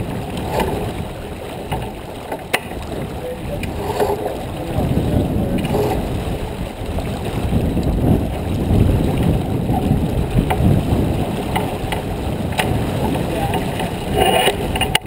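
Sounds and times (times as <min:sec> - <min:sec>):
water rushing past boat: 0:00.0 - 0:15.0
wind rushing: 0:02.8 - 0:14.7.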